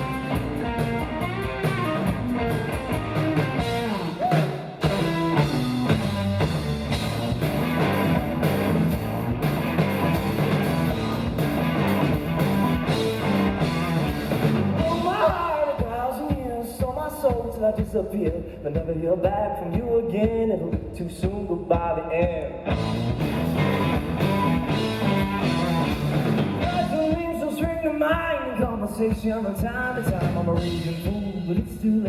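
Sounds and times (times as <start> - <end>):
rock band playing: 0.0 - 17.6, 22.4 - 32.0
person singing: 14.8 - 22.6, 26.6 - 32.0.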